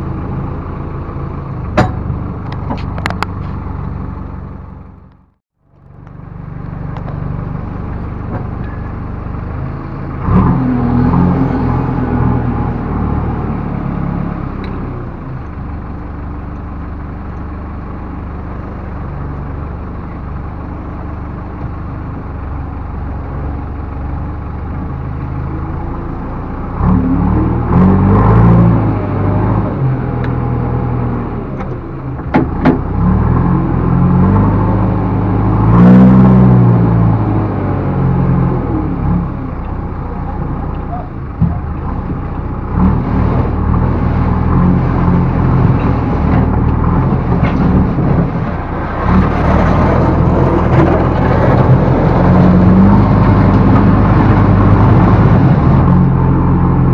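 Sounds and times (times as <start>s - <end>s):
backhoe diesel engine running: 0.0s - 56.9s
metallic knocks: 1.7s - 3.2s.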